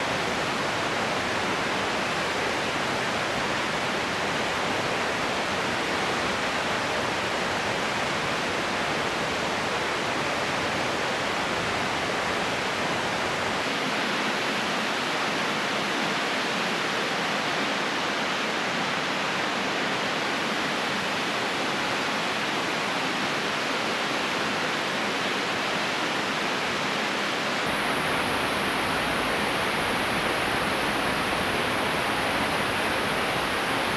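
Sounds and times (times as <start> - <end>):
waterfall rushing: 27.7 - 33.9.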